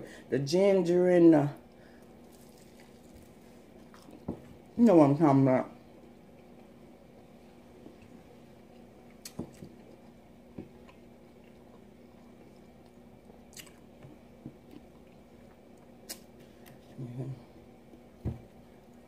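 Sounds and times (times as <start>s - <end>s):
steady low hum: 0.0s - 19.0s
person chewing: 2.0s - 4.3s, 6.1s - 17.0s.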